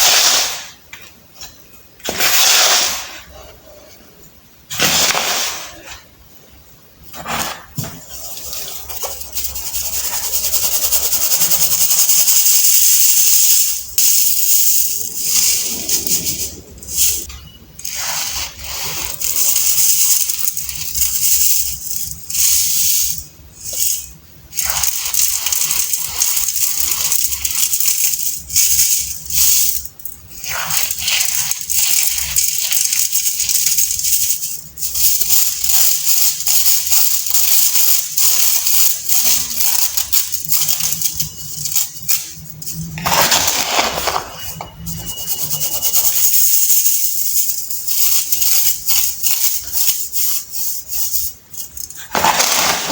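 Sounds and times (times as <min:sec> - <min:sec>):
baking soda crushed by hand: 0:52.0 - 0:52.9.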